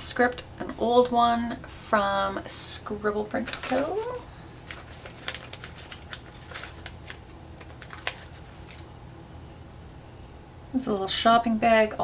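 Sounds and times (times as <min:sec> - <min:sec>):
paper sticker sheets crinkling: 0:03.2 - 0:08.9.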